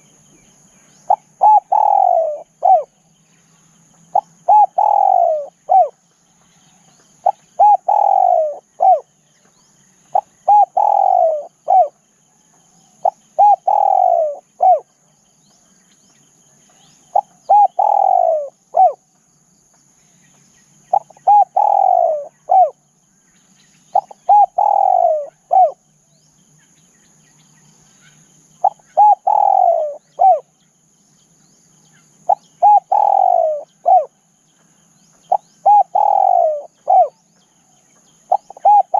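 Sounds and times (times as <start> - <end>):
dove cooing: 1.0 - 3.0, 4.1 - 6.0, 7.2 - 9.2, 10.1 - 12.0, 12.9 - 15.0, 17.1 - 19.0, 20.9 - 22.8, 23.9 - 25.8, 28.6 - 30.5, 32.2 - 34.2, 35.2 - 37.3, 38.2 - 38.9.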